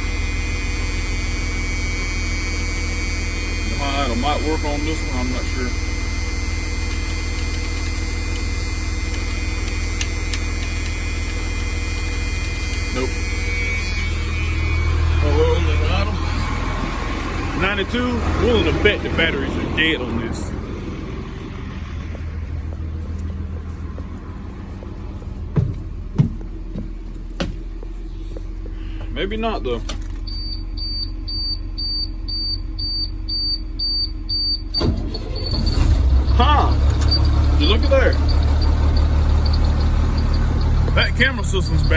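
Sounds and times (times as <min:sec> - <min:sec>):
diesel bus engine idling: 0:00.0 - 0:41.9
burst of noise: 0:00.1 - 0:22.1
high warning beeps: 0:00.2 - 0:23.3, 0:28.8 - 0:41.9.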